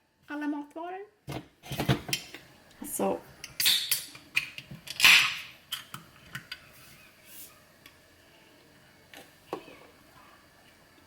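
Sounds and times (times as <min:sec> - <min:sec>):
groceries clicking and knocking: 0:03.4 - 0:06.7.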